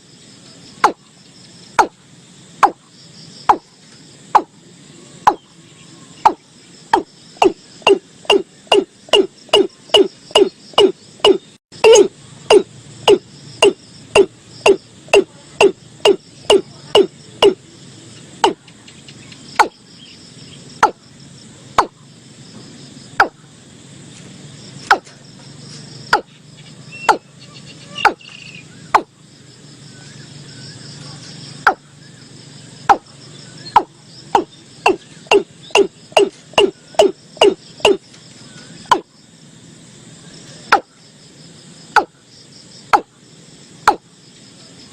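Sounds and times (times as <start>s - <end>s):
faint insect hum: 0.0s - 44.9s
bird calling hollow notes: 0.8s - 1.1s, 1.7s - 2.0s, 2.6s - 2.9s, 3.5s - 3.7s, 4.3s - 4.6s, 5.2s - 5.5s, 6.2s - 17.6s, 18.4s - 19.8s, 20.8s - 21.0s, 21.8s - 22.0s, 23.2s - 23.4s, 24.9s - 25.1s, 26.1s - 29.2s, 31.6s - 32.0s, 32.8s - 38.0s, 38.8s - 39.1s, 42.0s - 42.2s, 42.9s - 43.2s, 43.9s - 44.1s.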